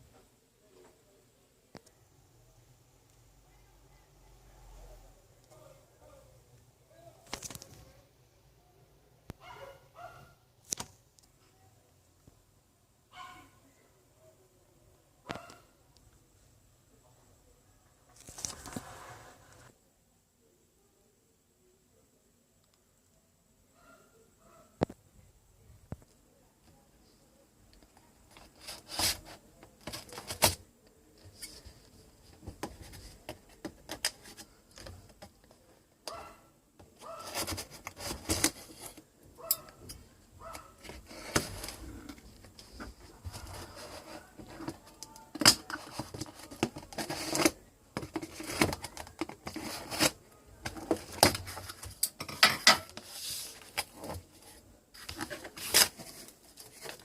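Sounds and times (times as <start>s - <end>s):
objects being handled: 27.7s - 57.0s.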